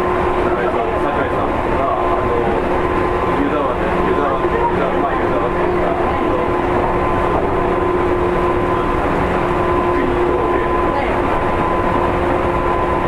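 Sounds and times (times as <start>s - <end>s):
motors humming: 0.0s - 13.0s
train wheels rumbling on rail: 0.0s - 13.0s.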